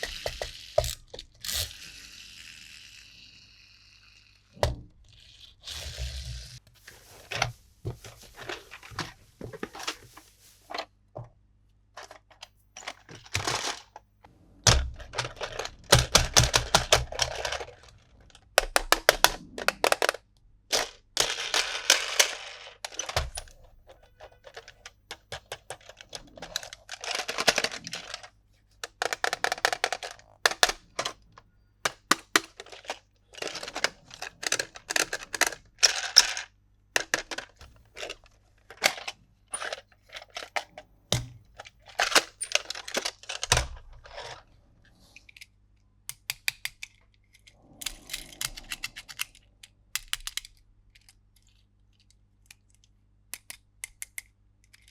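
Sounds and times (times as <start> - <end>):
packaging crinkling: 25.6 - 30.9, 32.0 - 36.4, 41.6 - 44.4
sharp plastic clicks: 46.1 - 54.9.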